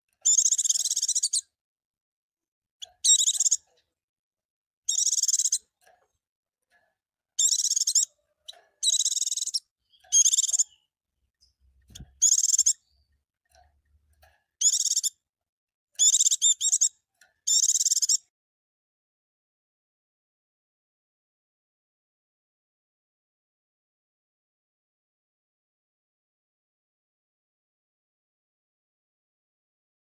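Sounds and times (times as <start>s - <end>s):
bird twittering: 0.2s - 1.5s, 2.8s - 3.7s, 4.9s - 5.7s, 7.4s - 13.1s, 14.6s - 15.2s, 16.0s - 18.3s.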